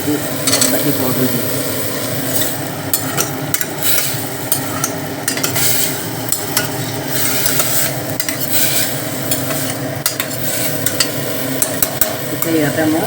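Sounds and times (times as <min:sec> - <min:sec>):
lentils sizzling in hot oil: 0:00.0 - 0:13.0
spatula scraping metal pot: 0:02.2 - 0:12.0.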